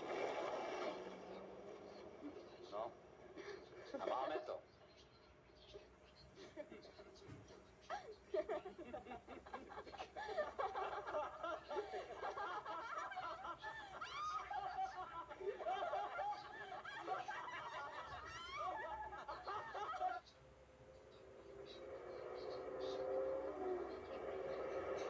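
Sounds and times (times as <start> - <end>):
people laughing: 0.2 - 4.6, 6.4 - 20.4.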